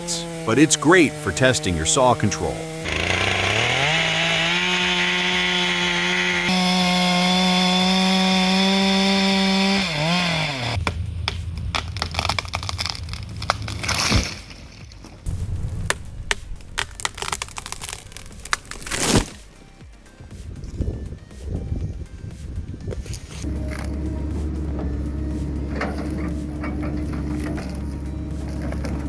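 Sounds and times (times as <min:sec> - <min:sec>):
chainsaw cutting: 0:00.0 - 0:11.1, 0:11.7 - 0:20.4, 0:23.1 - 0:29.0
sharp wood cracks and knocks: 0:10.8 - 0:19.5.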